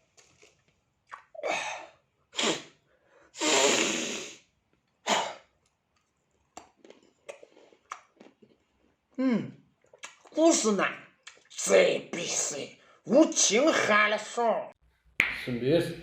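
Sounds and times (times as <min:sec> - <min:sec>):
mouth clicks: 0:00.2 - 0:01.4, 0:06.5 - 0:08.4, 0:09.8 - 0:10.4.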